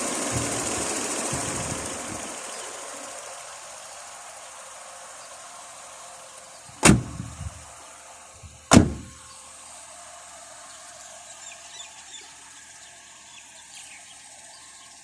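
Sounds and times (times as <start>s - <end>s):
car door slamming: 6.8s - 7.6s, 8.4s - 9.2s.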